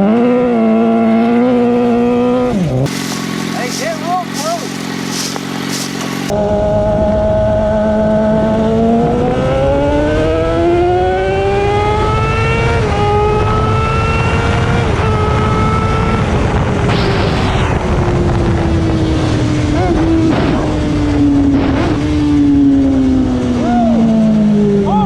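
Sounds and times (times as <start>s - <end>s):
motorcycle engine accelerating: 0.0s - 25.0s
gear upshifts: 2.3s - 7.4s.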